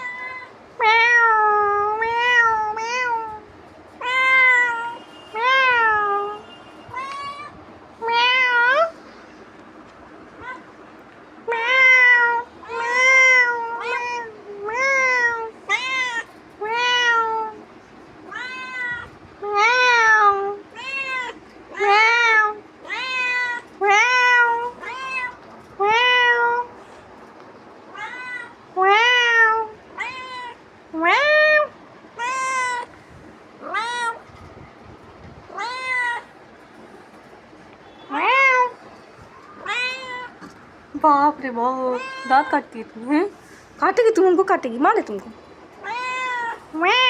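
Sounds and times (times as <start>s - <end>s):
cat meowing: 0.0s - 9.0s, 10.4s - 10.8s, 11.5s - 17.6s, 18.2s - 27.0s, 27.9s - 33.0s, 33.6s - 34.4s, 35.5s - 36.4s, 38.0s - 40.6s, 41.8s - 42.7s, 45.8s - 47.0s.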